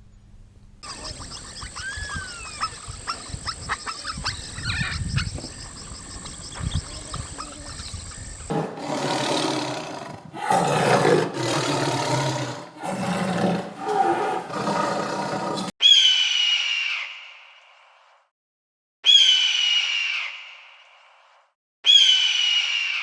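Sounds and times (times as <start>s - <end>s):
high-pitched sliding animal call: 0.8s - 8.5s
large animal roaring: 8.5s - 15.7s.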